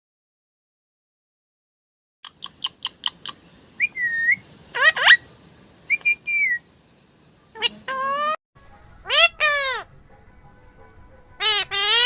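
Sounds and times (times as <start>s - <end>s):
parrot squawks: 2.2s - 5.3s, 5.9s - 6.6s, 7.5s - 8.4s, 9.0s - 9.9s, 11.4s - 12.0s
parrot whistling: 2.2s - 5.3s, 5.9s - 6.7s, 7.5s - 8.4s, 9.0s - 9.9s, 11.4s - 12.0s.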